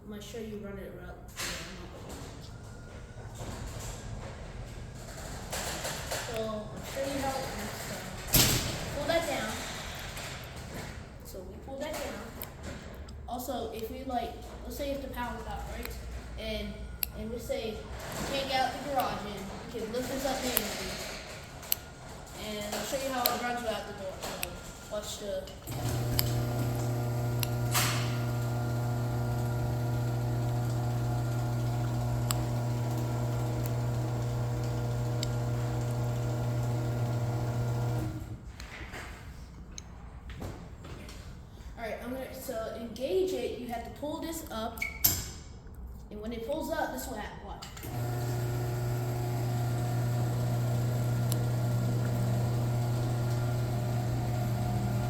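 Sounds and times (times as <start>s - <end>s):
garage door opener motor humming: 2.1s - 11.2s, 15.6s - 38.5s, 47.7s - 55.0s.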